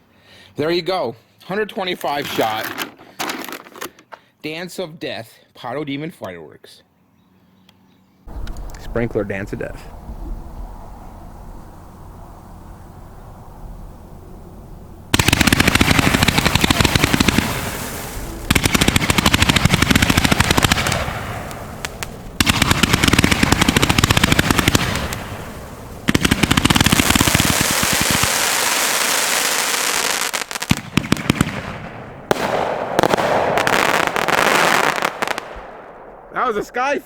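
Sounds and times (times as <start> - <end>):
firework hissing and crackling: 15.1 - 31.7
firework cake firing rapidly: 15.1 - 35.5.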